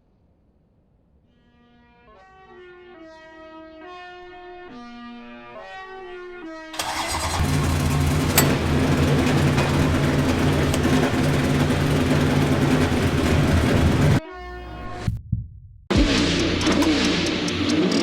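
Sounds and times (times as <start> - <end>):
truck engine revving hard: 6.8 - 14.2.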